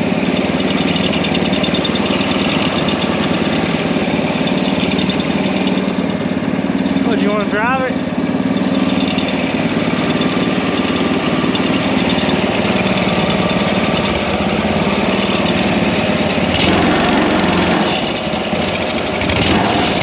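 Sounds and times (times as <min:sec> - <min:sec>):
small engine running steadily: 0:00.0 - 0:20.0.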